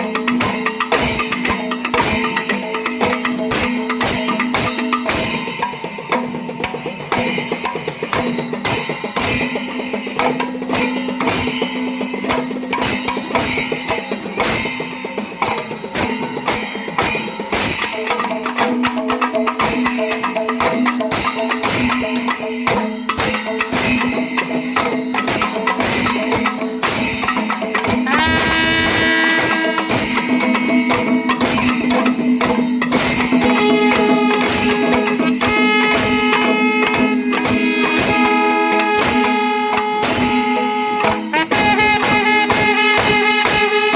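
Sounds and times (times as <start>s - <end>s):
hand cymbals clashing: 0.0s - 41.4s
fast drum strokes: 25.2s - 43.8s
wind instrument held notes: 28.0s - 31.4s.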